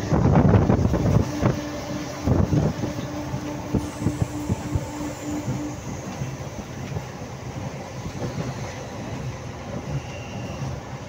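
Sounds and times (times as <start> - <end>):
rushing air: 0.0 - 8.6
train wheels rumbling on track: 0.0 - 11.0.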